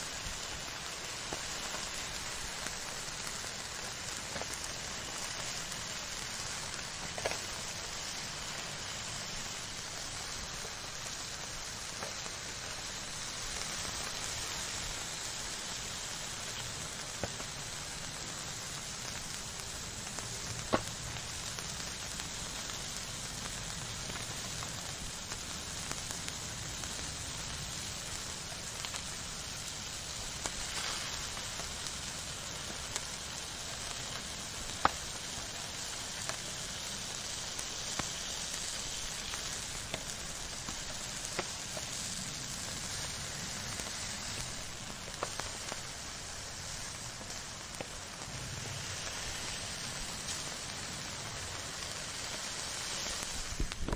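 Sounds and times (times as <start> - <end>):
fire crackling pops: 0.0 - 53.9
fire hissing: 0.0 - 53.9.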